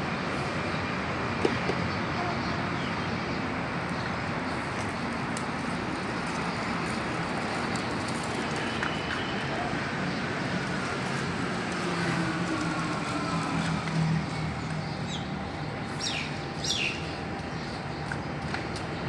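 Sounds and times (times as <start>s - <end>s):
continuous hiss and rumble: 0.0s - 19.0s.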